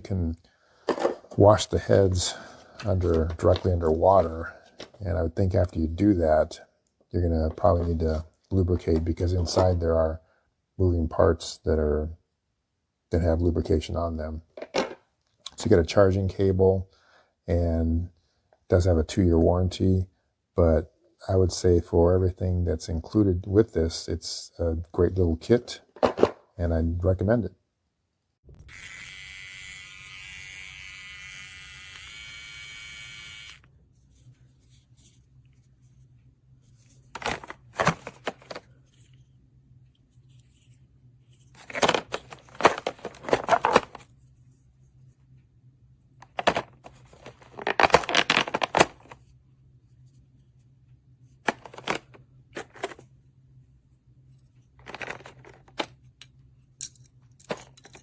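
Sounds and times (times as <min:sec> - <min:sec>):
steady electric buzz: 0:28.6 - 0:33.7
rustling crinkling handling: 0:40.1 - 0:44.7, 0:46.2 - 0:49.4.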